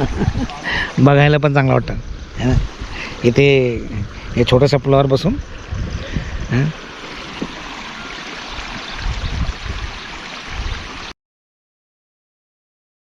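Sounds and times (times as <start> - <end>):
low rumbles: 0.0 - 8.0
water rushing in a stream: 0.0 - 11.2.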